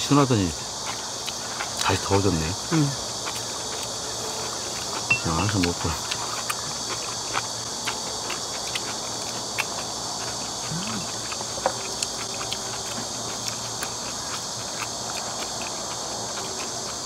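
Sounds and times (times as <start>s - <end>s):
insect chorus buzzing: 0.0s - 17.0s
people chewing food: 0.0s - 17.0s
chopsticks tapping glass bowls: 5.1s - 5.6s.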